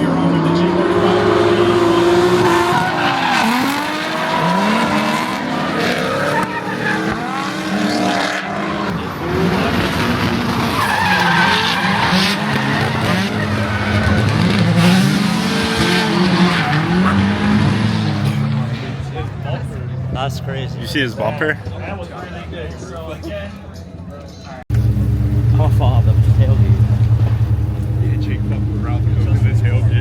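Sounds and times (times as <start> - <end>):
car engines revving: 0.0 - 30.0
tyres screeching: 0.9 - 8.9, 10.5 - 19.2.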